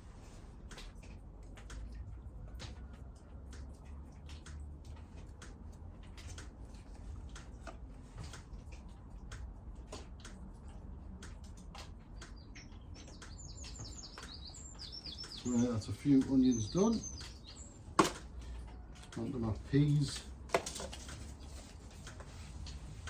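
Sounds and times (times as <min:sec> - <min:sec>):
light ticks and taps: 0:00.2 - 0:23.0
small bird chirping: 0:12.2 - 0:20.2.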